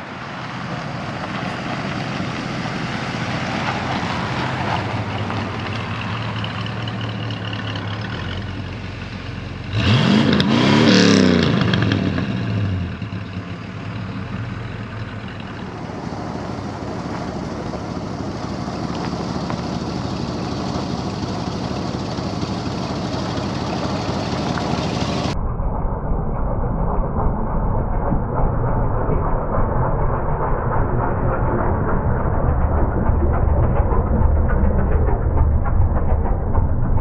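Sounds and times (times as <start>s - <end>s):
car engine revving: 0.0s - 25.4s.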